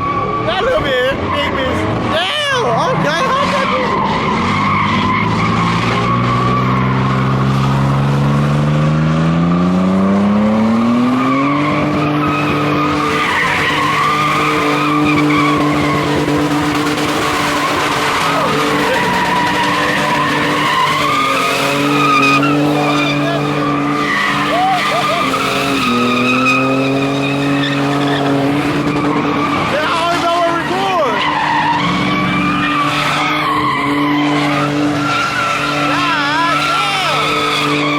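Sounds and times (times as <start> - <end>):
tyres squealing: 0.0 - 8.0, 10.9 - 37.9
car engine revving: 0.0 - 37.9.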